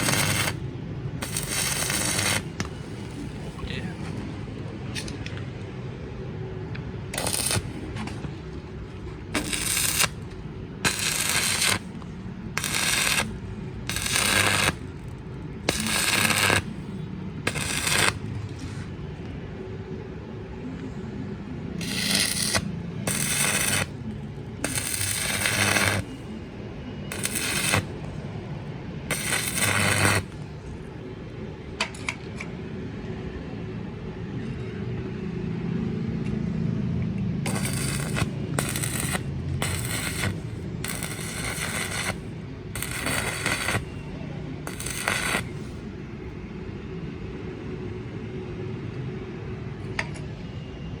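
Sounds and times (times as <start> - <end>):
crackling welding arc: 0.0 - 0.6, 1.2 - 3.4, 7.2 - 8.0, 9.3 - 18.3, 21.8 - 26.3, 27.1 - 28.2, 29.1 - 30.4, 37.5 - 44.0, 44.6 - 45.7
welder low hum: 0.0 - 0.6, 1.2 - 4.5, 7.0 - 18.4, 21.6 - 26.5, 27.1 - 30.4, 37.4 - 46.0.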